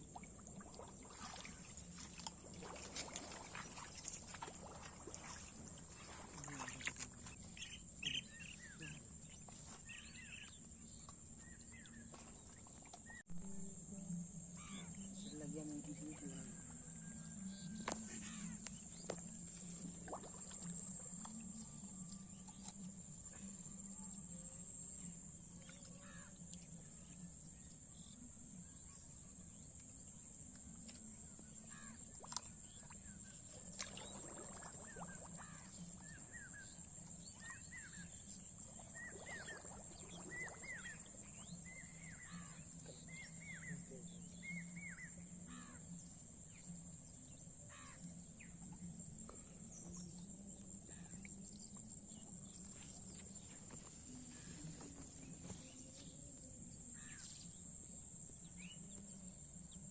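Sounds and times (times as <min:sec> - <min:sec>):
birds calling: 0:04.6 - 0:10.6.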